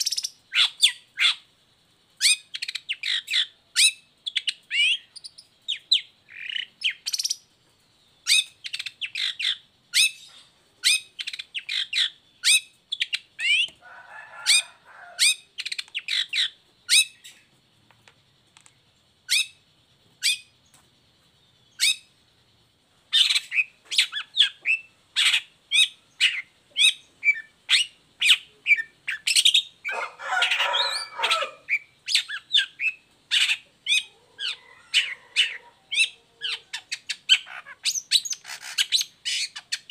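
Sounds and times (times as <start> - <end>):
harsh rasping bird calls: 0.0 - 1.6, 8.2 - 17.6, 23.1 - 39.9
shrike singing sharp chirps: 23.1 - 39.9.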